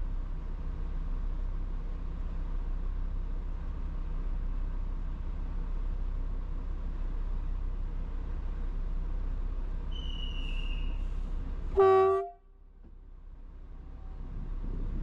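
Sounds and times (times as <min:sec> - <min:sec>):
low background rumble: 0:00.0 - 0:15.0
faint high whistle: 0:09.9 - 0:11.1
train horn blast: 0:11.8 - 0:12.4.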